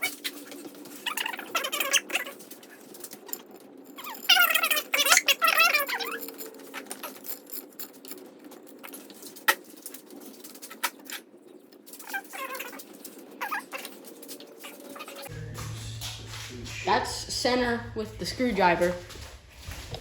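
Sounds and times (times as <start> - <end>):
tools and bicycle parts clicking: 0.0 - 15.3.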